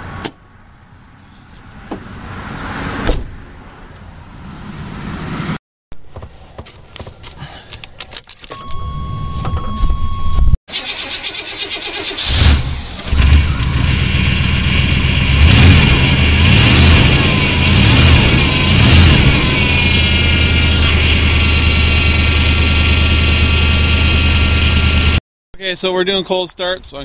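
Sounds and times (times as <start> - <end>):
steady warning chime: 8.5 - 10.5, 17.2 - 20.2
starter motor cranking: 10.7 - 13.8
pickup engine running and revving: 12.4 - 25.2.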